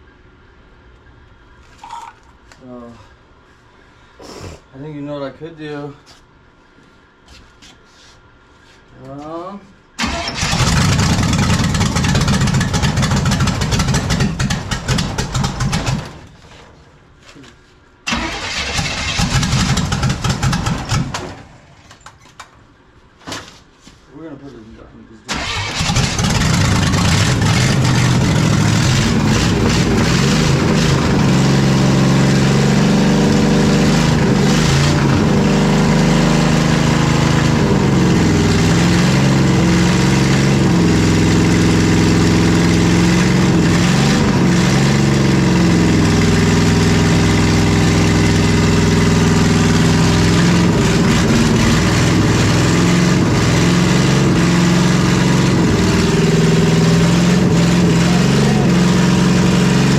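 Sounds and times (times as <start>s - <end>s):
loud race engine revving: 25.4s - 59.9s.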